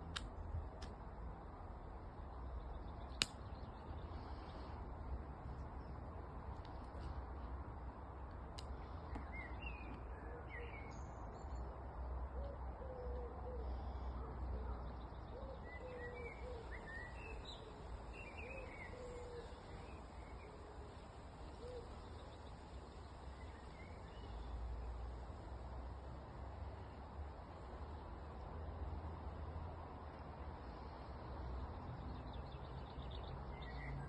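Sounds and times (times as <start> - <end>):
distant traffic rumble: 0.0 - 34.0
small birds chirping: 1.8 - 11.8, 13.0 - 25.8, 30.1 - 34.0.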